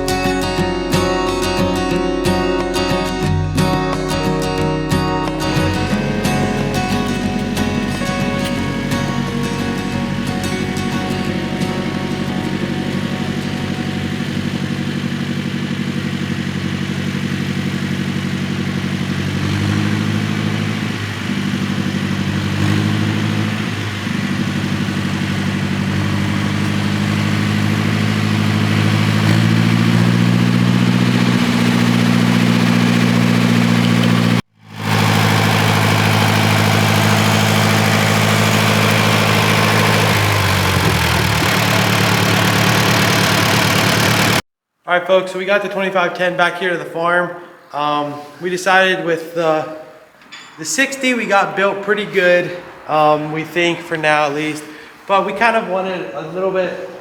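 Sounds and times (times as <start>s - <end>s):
tractor engine running: 0.0s - 44.4s.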